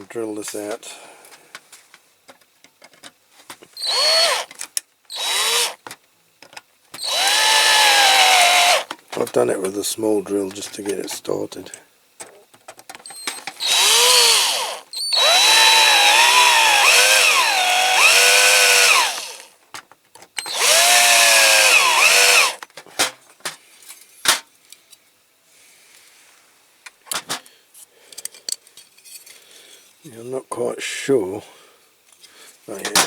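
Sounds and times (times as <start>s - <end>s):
cordless drill whining: 3.8s - 4.5s, 5.1s - 5.8s, 7.0s - 8.9s, 13.1s - 19.5s, 20.4s - 22.6s.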